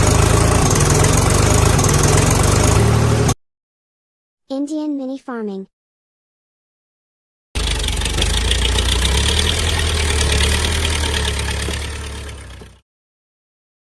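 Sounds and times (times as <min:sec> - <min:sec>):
heavy engine idling: 0:00.0 - 0:03.3, 0:07.6 - 0:12.8.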